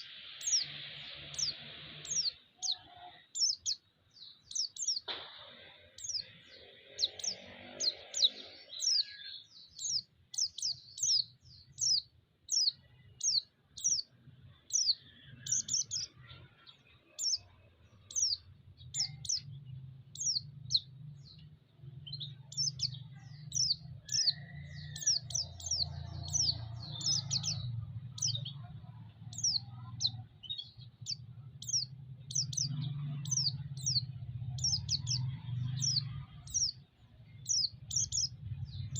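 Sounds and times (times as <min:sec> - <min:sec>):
bird chirping: 0:00.0 - 0:38.9
low steady rumble: 0:17.9 - 0:38.9.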